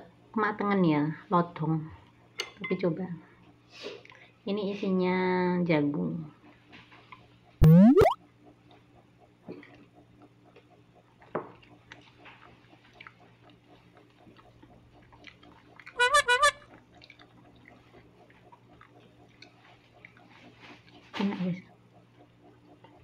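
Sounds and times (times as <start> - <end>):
high-pitched warbling sound: 7.6 - 8.2
quiet chewing: 8.7 - 16.0, 16.7 - 23.0.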